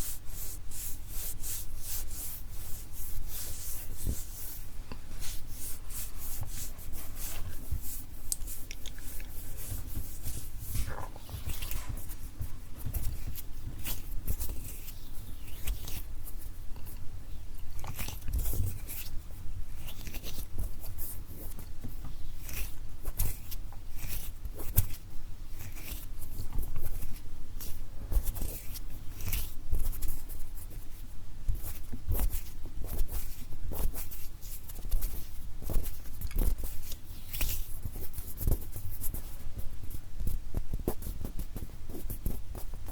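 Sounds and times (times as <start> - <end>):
hands rubbing near microphone: 0.0 - 17.0.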